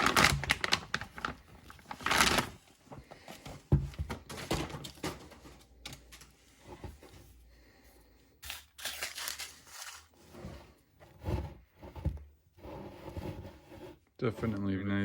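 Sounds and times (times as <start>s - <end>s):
plastic packaging crinkling: 0.0s - 2.8s, 8.4s - 10.2s.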